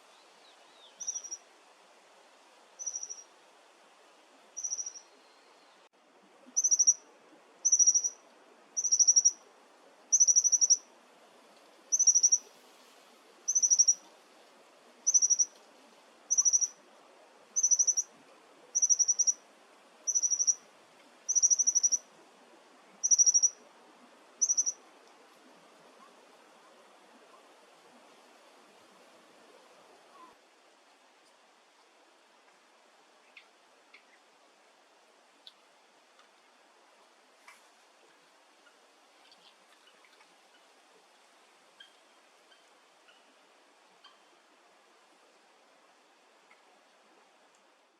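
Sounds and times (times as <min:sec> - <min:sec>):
bird calling with trilled notes: 0:01.0 - 0:01.4, 0:02.8 - 0:03.2, 0:04.6 - 0:05.0, 0:06.6 - 0:07.0, 0:07.7 - 0:08.2, 0:08.8 - 0:09.4, 0:10.2 - 0:10.8, 0:11.9 - 0:12.4, 0:13.5 - 0:14.0, 0:15.1 - 0:15.5, 0:16.3 - 0:16.7, 0:17.6 - 0:18.0, 0:18.8 - 0:19.3, 0:20.1 - 0:20.6, 0:21.3 - 0:22.0, 0:23.0 - 0:23.5, 0:24.4 - 0:24.8.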